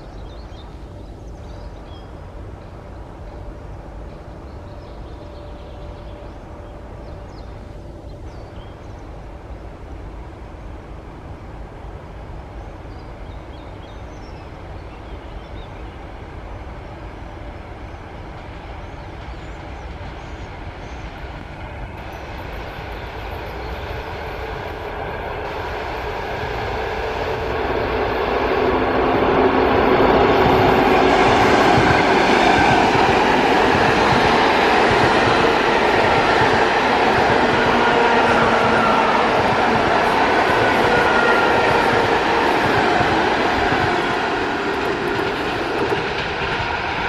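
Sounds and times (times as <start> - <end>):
train approaching: 0.0 - 47.0.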